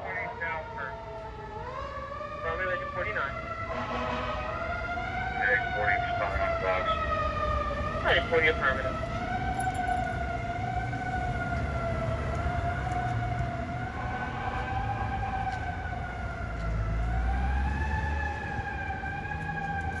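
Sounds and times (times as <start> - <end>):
fire truck siren wailing: 0.0 - 20.0
low engine rumble: 6.2 - 20.0.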